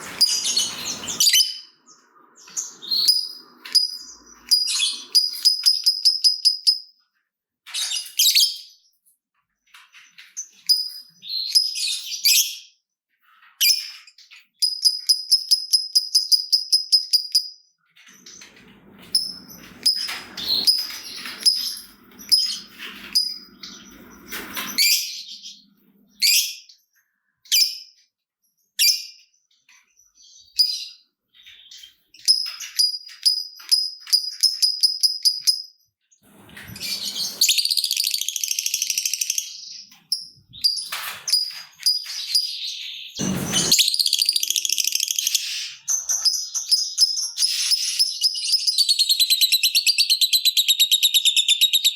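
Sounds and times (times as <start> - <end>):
dense high bird chatter: 0.0 - 6.6
high ticking bird chirps: 0.3 - 6.9, 37.4 - 40.8
sharp bird chirps: 36.8 - 40.9, 42.3 - 51.9.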